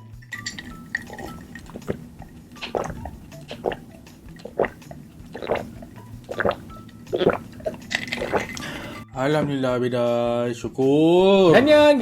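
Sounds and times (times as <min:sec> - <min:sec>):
wet chewing of food: 0:00.4 - 0:09.0.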